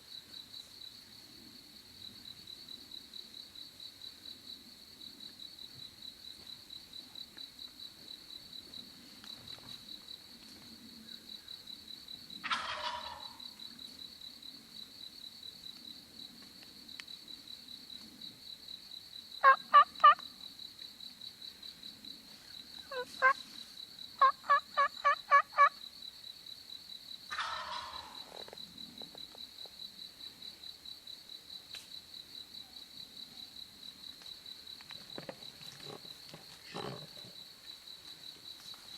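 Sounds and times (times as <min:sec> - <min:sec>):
turkey gobbling: 0:12.4 - 0:13.4, 0:19.4 - 0:20.2, 0:22.9 - 0:23.4, 0:24.2 - 0:25.8, 0:27.3 - 0:28.2
turkey yelps: 0:12.4 - 0:13.4, 0:19.4 - 0:20.2, 0:22.9 - 0:23.4, 0:24.2 - 0:25.7, 0:27.3 - 0:28.2.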